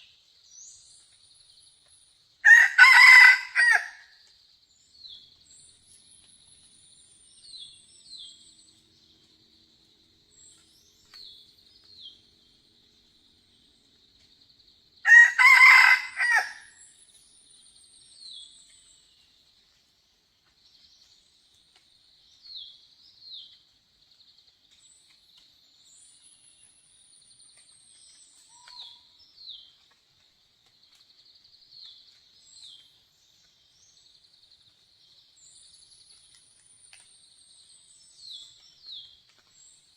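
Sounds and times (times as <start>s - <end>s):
rooster crowing: 2.4s - 4.1s, 15.1s - 16.7s.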